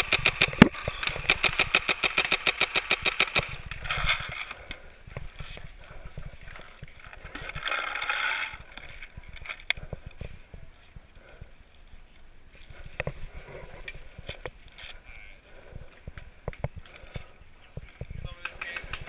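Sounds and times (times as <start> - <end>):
paintball marker rapid firing: 0.0 - 3.6.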